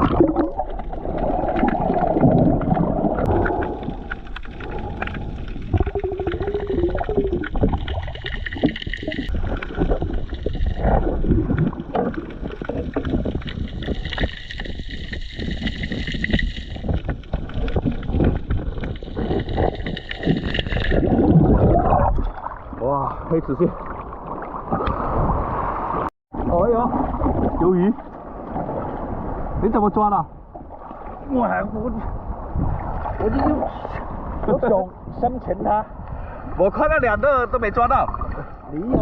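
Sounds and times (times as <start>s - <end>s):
bubbles gurgling underwater: 0.0s - 25.7s
low underwater rumble: 0.0s - 36.4s.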